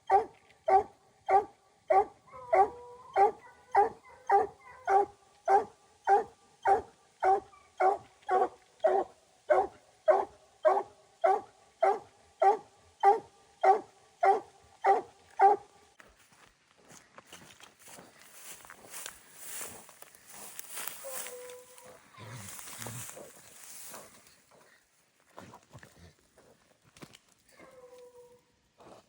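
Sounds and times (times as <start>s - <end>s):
hound barking: 0.0s - 15.8s, 20.7s - 23.2s.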